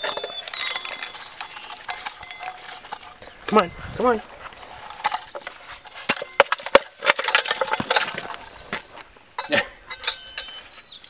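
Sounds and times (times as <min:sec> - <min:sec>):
bird feeder knocking and rattling: 0:00.0 - 0:08.8.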